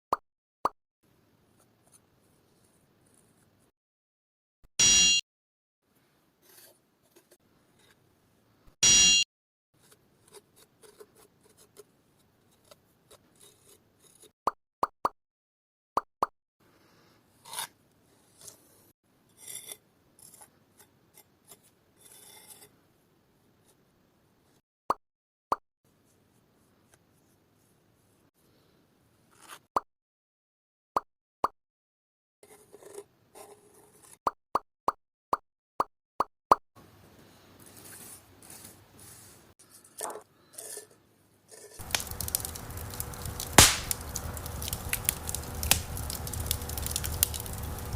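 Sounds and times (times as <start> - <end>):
rubbing and scraping of hand work: 37.4 - 42.8
short sharp pops: 41.8 - 44.3
wood fire crackling: 41.8 - 47.9.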